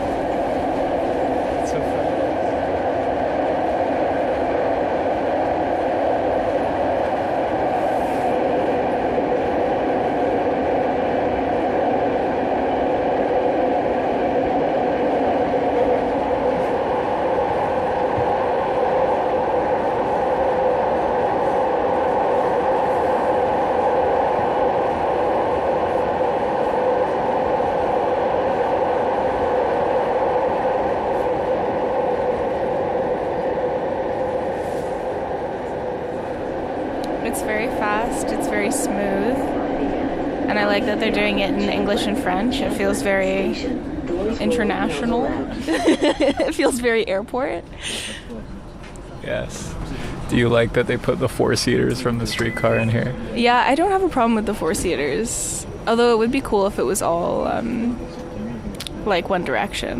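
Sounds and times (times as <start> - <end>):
rail car hum and rumble: 0.0 - 59.9.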